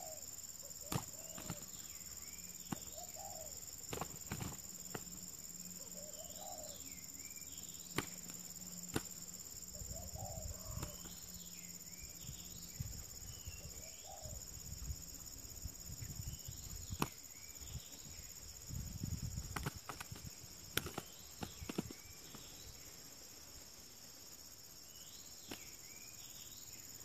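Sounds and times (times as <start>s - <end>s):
bird chirping calls: 0.0s - 3.6s, 5.8s - 8.3s, 19.9s - 23.0s
insects buzzing: 0.0s - 27.0s
bird scuffling on dirt: 0.8s - 5.2s, 7.7s - 9.2s, 19.3s - 23.1s, 25.4s - 26.0s.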